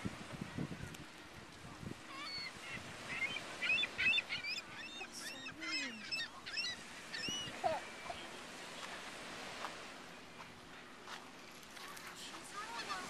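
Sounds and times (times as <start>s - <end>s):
seagulls calling: 2.0s - 9.1s, 10.0s - 13.0s.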